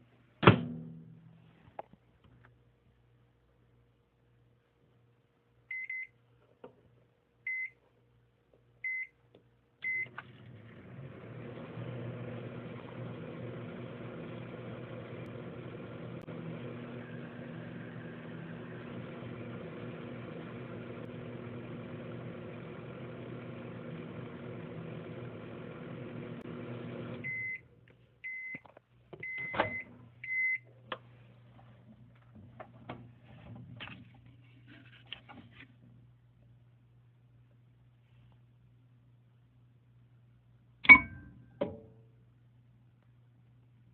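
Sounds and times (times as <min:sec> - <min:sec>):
microwave keypad beeps: 0:05.7 - 0:06.1, 0:27.2 - 0:27.6, 0:29.2 - 0:30.6, 0:40.9 - 0:41.2
microwave oven humming: 0:09.8 - 0:28.5.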